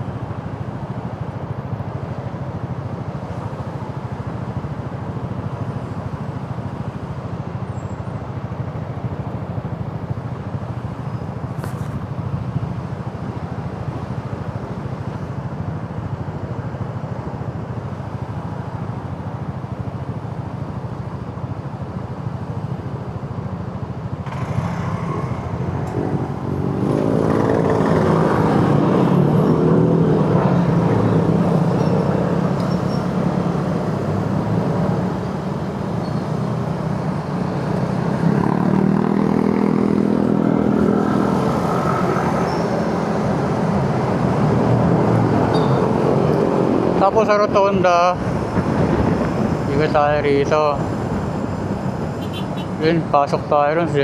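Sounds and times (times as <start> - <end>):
road noise: 0.0 - 54.0
motorcycle engine: 24.1 - 47.1, 51.0 - 53.0.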